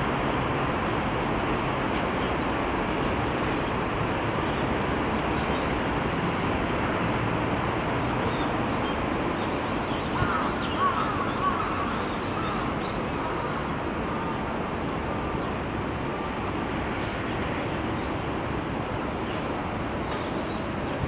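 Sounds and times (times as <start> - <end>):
crow cawing: 10.2 - 11.8.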